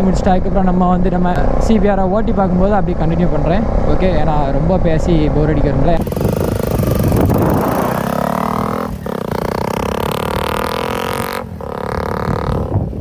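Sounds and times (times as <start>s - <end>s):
motorcycle engine accelerating: 6.0s - 13.0s.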